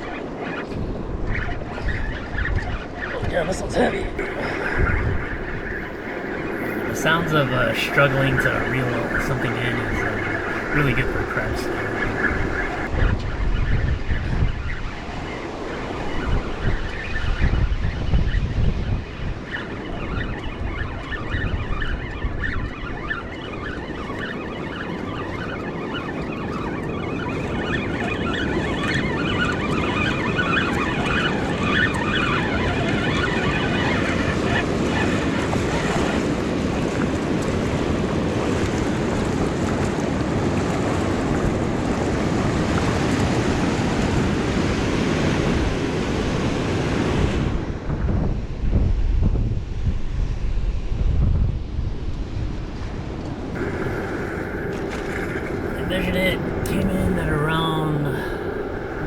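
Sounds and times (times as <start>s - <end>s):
wind buffeting microphone: 0.0s - 26.5s, 27.4s - 59.0s
surf washing: 3.6s - 12.9s, 53.6s - 59.0s.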